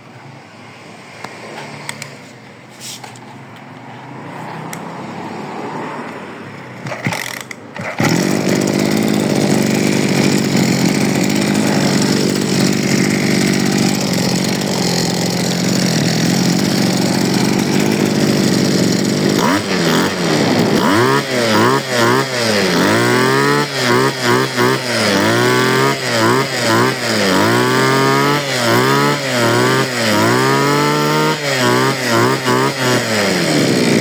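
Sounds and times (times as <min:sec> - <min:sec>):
brush cutter engine running: 0:06.8 - 0:34.0.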